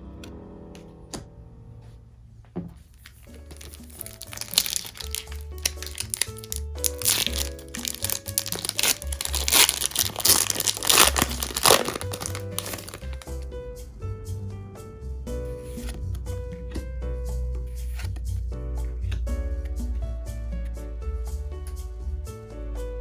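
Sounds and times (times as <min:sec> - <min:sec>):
soft background music: 0:02.9 - 0:23.0
wrapper crinkling and tearing: 0:03.0 - 0:13.4.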